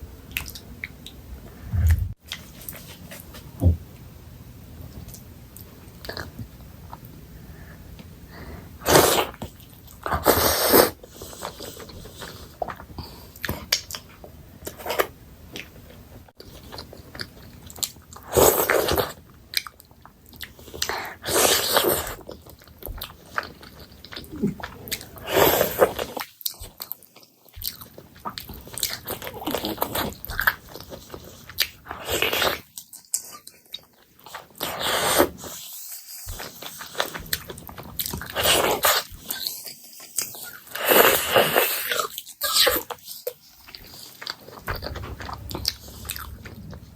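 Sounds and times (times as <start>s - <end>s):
chewing and biting food: 16.4s - 46.9s.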